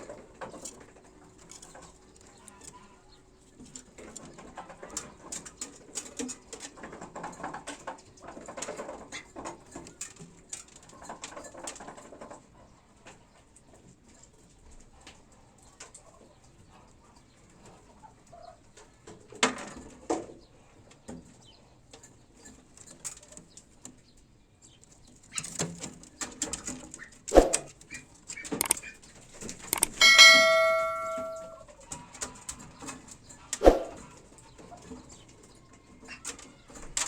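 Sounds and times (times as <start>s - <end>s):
pigeons stirring: 25.0s - 31.0s, 31.7s - 37.0s
bell-like ding: 29.8s - 31.6s
sharp knocks and rustles: 32.2s - 34.1s.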